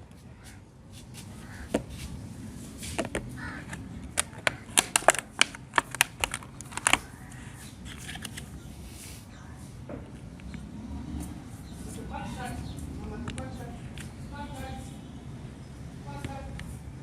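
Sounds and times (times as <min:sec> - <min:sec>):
small hard objects clicking: 0:04.1 - 0:07.1.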